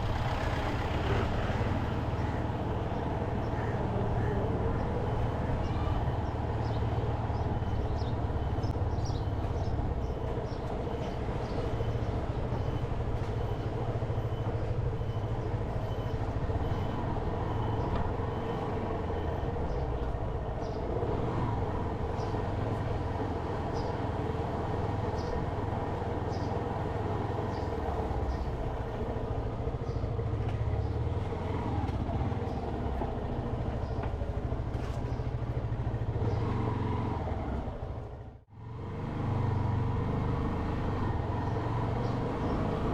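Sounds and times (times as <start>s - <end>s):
road noise: 0.0s - 42.9s.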